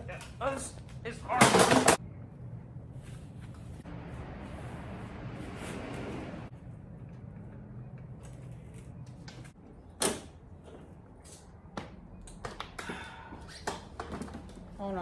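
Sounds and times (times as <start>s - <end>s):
low hum: 2.0s - 9.6s.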